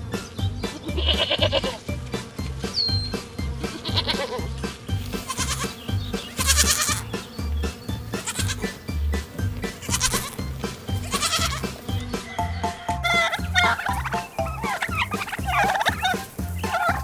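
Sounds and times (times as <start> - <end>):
background music with steady beat: 0.0 - 12.4, 13.0 - 17.0
farm animal bleating: 0.9 - 1.8, 3.6 - 8.8, 9.6 - 17.0.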